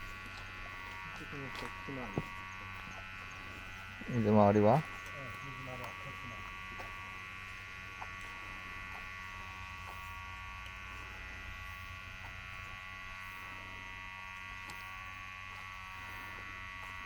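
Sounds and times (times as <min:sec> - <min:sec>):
small motor buzzing: 0:00.0 - 0:17.0.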